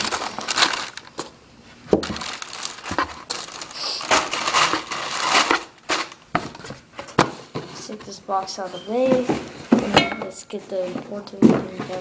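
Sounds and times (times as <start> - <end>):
paper crinkling: 0.0 - 1.3, 1.9 - 6.8.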